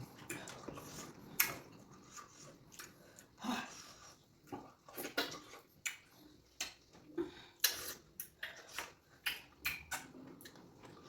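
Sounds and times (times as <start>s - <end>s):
wet chewing mouth smacks: 7.6s - 10.6s.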